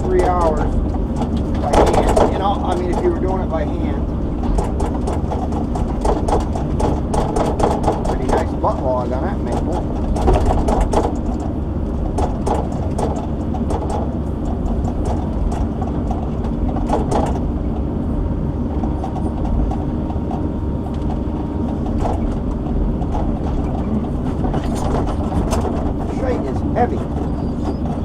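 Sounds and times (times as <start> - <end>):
diesel engine running under load: 0.0 - 28.0
hydraulics working: 0.0 - 28.0
knocks: 0.1 - 3.4, 4.4 - 8.8, 9.4 - 17.5.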